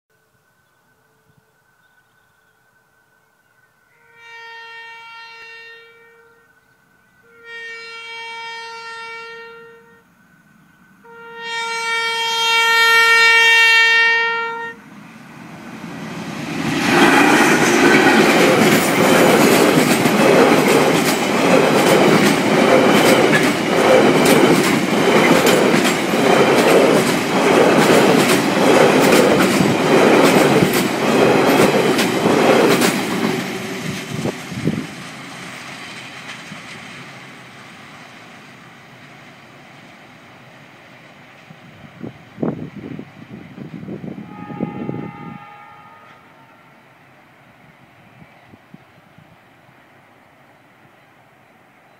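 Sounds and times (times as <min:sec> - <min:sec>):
locomotive horn blasts: 0:03.9 - 0:06.6, 0:07.2 - 0:10.1, 0:11.0 - 0:14.9, 0:44.2 - 0:46.8
train rumbling past: 0:06.5 - 0:51.9.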